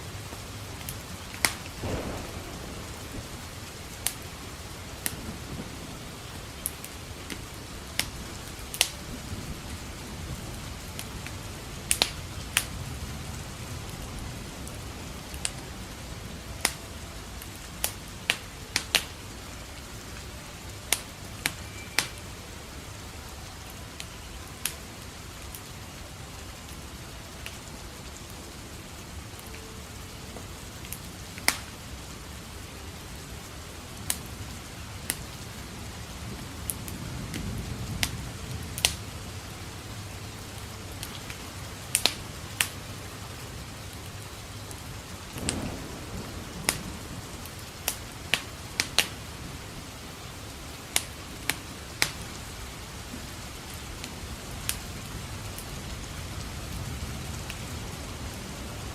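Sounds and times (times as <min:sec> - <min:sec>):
steady rain: 0:00.0 - 0:58.9
wood fire crackling: 0:00.0 - 0:58.9
distant thunder rumble: 0:00.5 - 0:16.6, 0:44.4 - 0:50.5.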